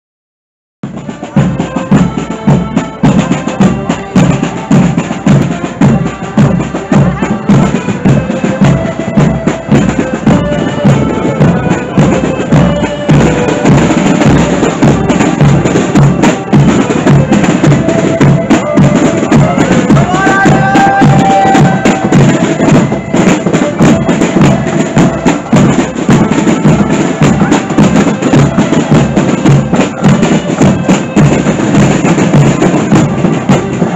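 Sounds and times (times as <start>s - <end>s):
marching drum beat: 0.8s - 33.9s
accordion band playing: 0.9s - 33.9s.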